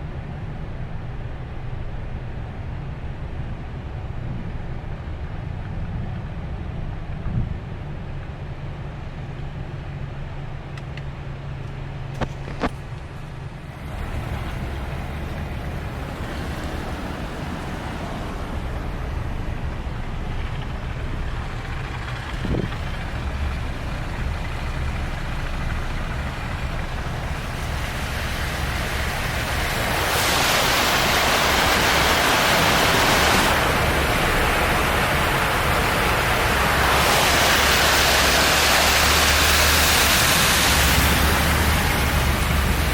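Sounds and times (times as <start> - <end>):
road rumble inside car: 0.0 - 42.9
water spraying against car: 12.2 - 42.9.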